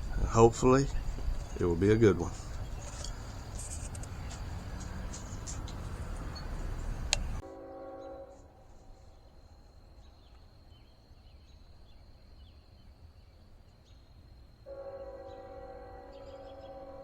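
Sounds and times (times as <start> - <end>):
bird chirps: 0.0 - 7.4
distant locomotive horn: 4.5 - 9.2, 14.7 - 17.0.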